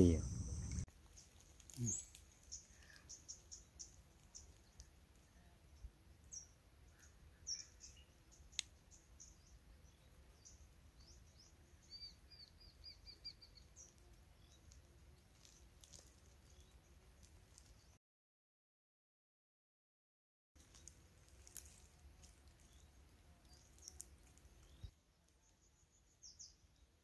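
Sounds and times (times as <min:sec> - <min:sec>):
faint bird chirps: 0:00.0 - 0:14.8.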